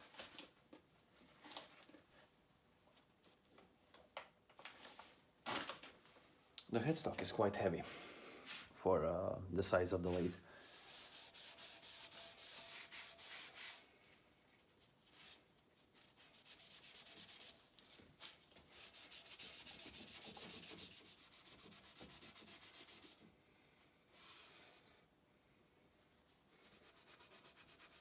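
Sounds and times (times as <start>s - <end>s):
rapid scrubbing on a surface: 16.2s - 17.7s, 18.7s - 23.2s.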